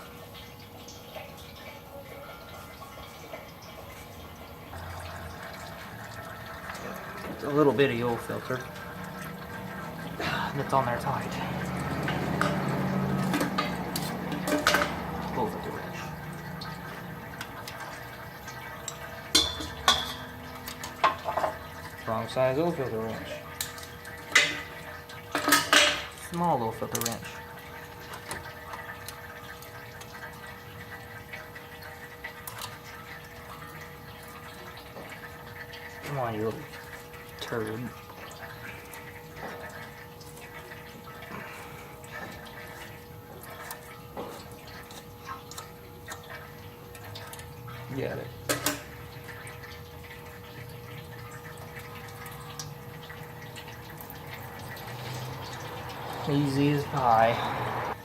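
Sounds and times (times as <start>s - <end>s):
oil running into drain pan: 0.0s - 58.0s.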